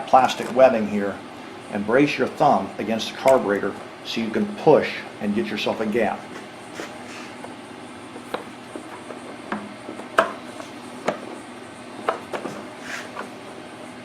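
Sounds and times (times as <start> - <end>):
valve cover clicking and knocking: 8.2 - 10.4.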